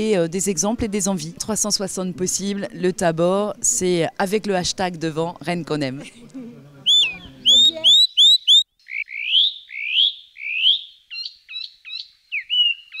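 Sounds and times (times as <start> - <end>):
bird chirping whistled phrases: 6.9 - 13.0.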